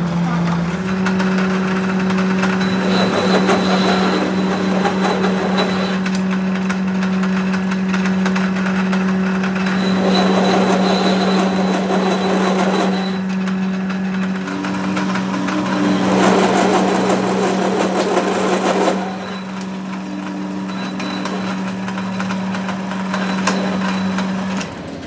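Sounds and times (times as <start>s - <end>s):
machine motor hum: 0.0s - 24.5s
harsh scraping with high whine: 2.3s - 6.4s, 9.7s - 13.4s, 15.0s - 19.8s.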